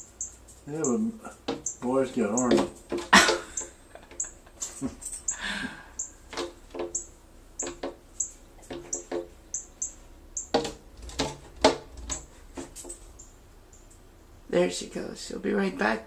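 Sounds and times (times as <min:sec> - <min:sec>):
bird chip notes: 0:00.0 - 0:02.7, 0:06.9 - 0:10.6
sharp taps and knocks: 0:01.4 - 0:04.3, 0:06.3 - 0:08.0, 0:08.6 - 0:09.7, 0:10.4 - 0:13.0.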